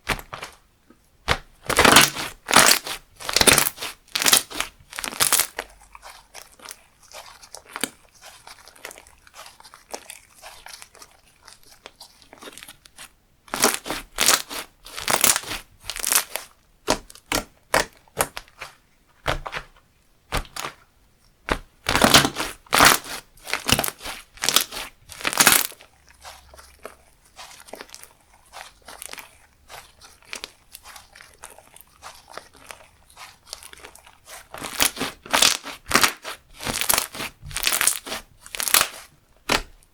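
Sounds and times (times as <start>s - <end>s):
slime squished by hand: 0.0s - 39.9s
sticky crackles and clicking pops: 21.5s - 25.8s.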